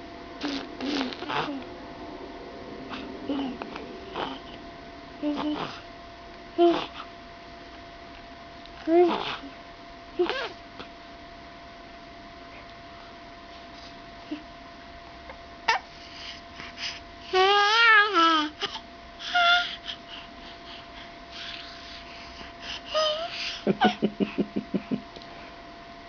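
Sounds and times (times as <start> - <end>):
baby babbling: 17.4 - 19.8.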